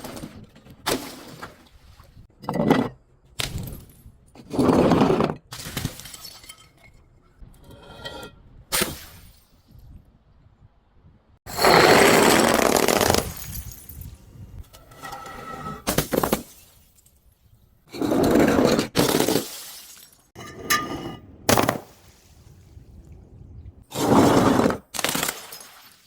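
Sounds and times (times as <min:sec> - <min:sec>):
glass smashing and crunching: 0:19.0 - 0:20.4.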